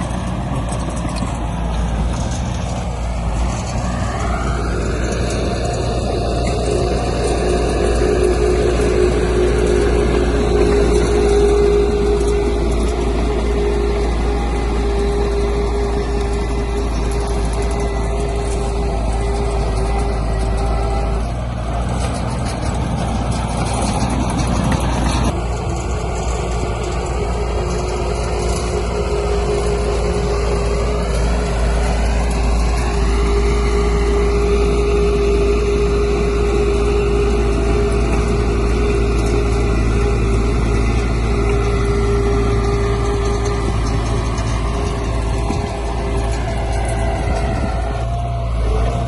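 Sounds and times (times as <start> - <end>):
heavy diesel engine running: 0.0 - 49.0.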